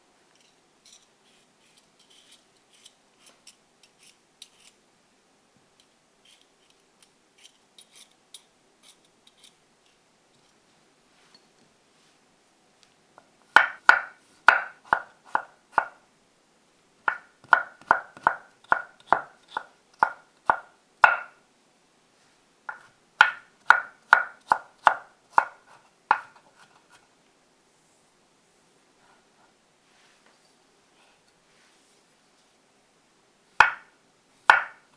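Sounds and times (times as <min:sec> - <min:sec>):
knife chopping on cutting board: 0:17.1 - 0:21.3, 0:22.7 - 0:26.4, 0:33.6 - 0:33.8, 0:34.5 - 0:34.8.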